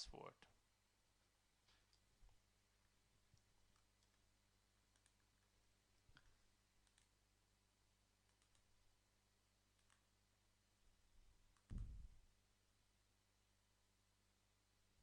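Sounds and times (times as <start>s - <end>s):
soft clicks: 4.9s - 5.5s, 6.1s - 7.2s, 8.2s - 8.7s, 9.7s - 10.1s.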